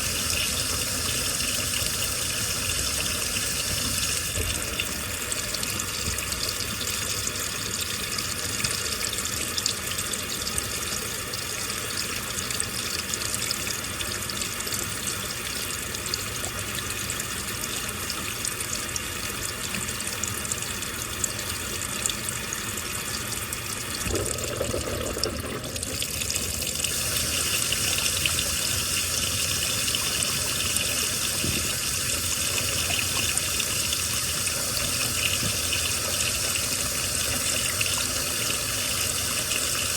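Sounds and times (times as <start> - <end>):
water splashing in washing machine: 0.0 - 39.9.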